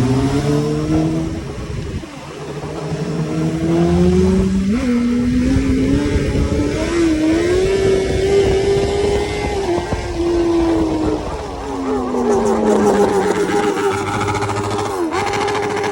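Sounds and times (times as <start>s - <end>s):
motorcycle engine revving: 0.0s - 15.9s.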